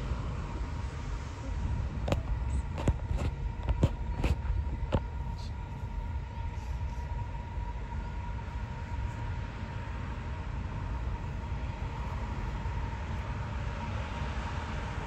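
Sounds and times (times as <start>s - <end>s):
diesel locomotive rumble: 0.0s - 15.0s.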